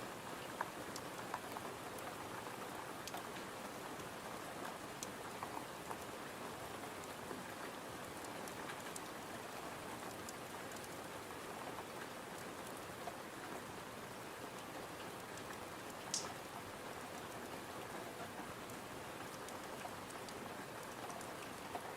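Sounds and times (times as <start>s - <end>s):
steady rain falling: 0.0s - 21.9s
clicks of raindrops: 14.6s - 21.9s.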